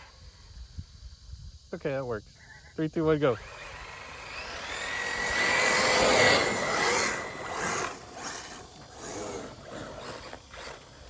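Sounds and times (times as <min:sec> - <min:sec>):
hiss: 0:00.0 - 0:06.3
rc buggy motors whining: 0:03.1 - 0:11.0.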